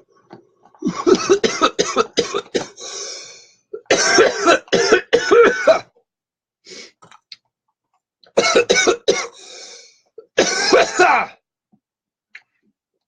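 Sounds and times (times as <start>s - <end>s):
man coughing: 0.8s - 2.8s, 3.8s - 5.9s, 8.4s - 9.4s, 10.3s - 11.4s.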